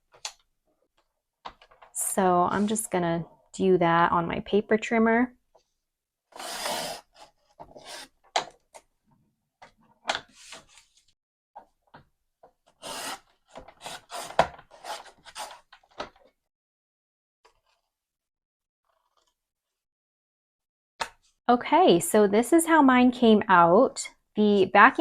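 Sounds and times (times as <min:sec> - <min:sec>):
paper trimmer blade scraping: 0:06.4 - 0:08.2, 0:12.8 - 0:15.7.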